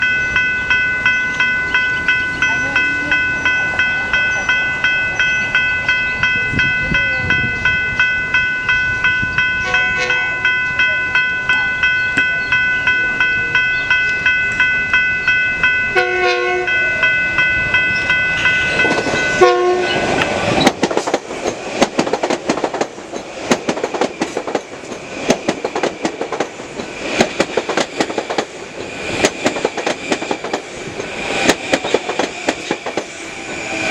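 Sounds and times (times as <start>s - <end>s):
warning bell dinging: 0.0s - 20.7s
train horn: 9.6s - 10.3s, 15.9s - 17.0s, 19.4s - 20.0s
train wheels clicking on rail joints: 17.0s - 33.9s.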